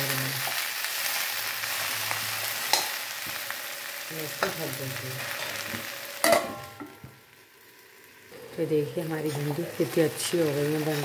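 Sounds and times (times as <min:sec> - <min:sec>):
okra sizzling in oil: 0:00.0 - 0:11.0
metal plate clanking on pan: 0:02.6 - 0:03.4, 0:05.7 - 0:07.0.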